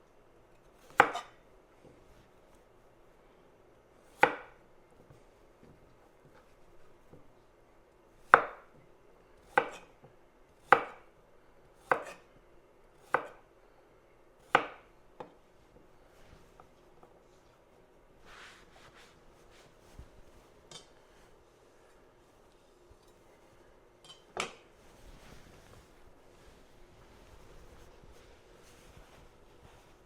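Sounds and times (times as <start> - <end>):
knife chopping on cutting board: 0.8 - 1.4, 4.1 - 4.6, 8.2 - 8.7, 9.5 - 9.9, 10.6 - 11.0, 11.8 - 12.3, 13.0 - 13.4, 14.5 - 15.3.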